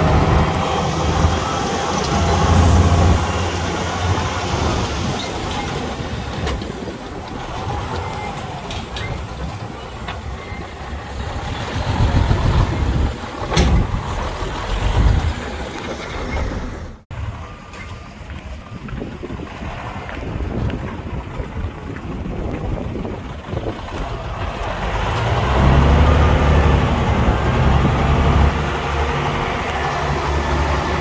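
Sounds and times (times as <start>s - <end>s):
heavy diesel machinery running: 0.0s - 31.0s.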